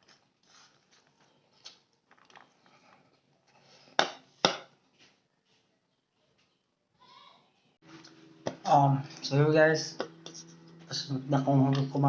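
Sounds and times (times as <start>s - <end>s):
spoon scraping a plate: 10.2s - 10.8s.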